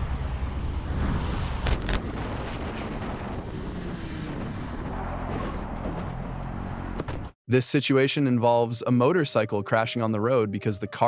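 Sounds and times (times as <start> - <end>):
road and traffic noise: 0.0 - 2.0, 3.1 - 7.4
wind rushing over microphone: 0.0 - 5.0.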